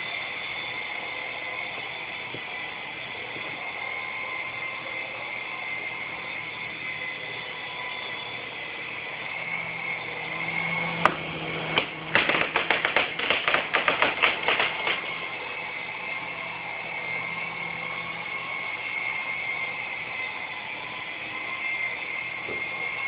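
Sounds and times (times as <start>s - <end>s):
toy helicopter motors whining: 0.0s - 23.0s
rapid clattering knocks: 11.8s - 15.1s
sharp click: 11.8s - 15.1s.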